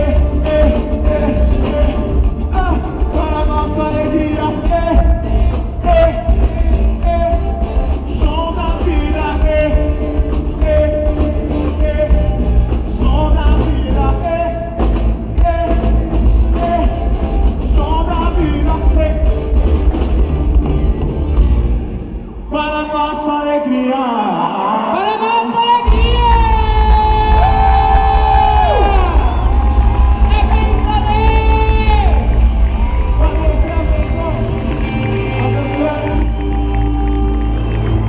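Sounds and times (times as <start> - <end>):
live gospel rock band: 0.0 - 22.8, 24.6 - 38.0.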